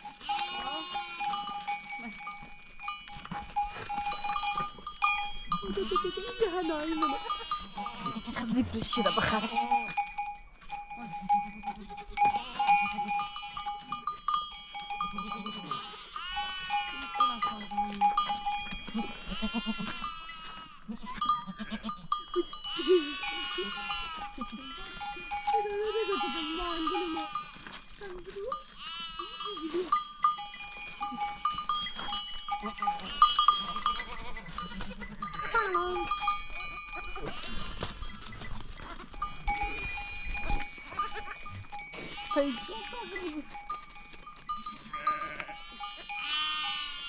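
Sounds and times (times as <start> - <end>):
goats and sheep bleating: 0.0 - 47.0
livestock bells ringing: 0.0 - 47.0.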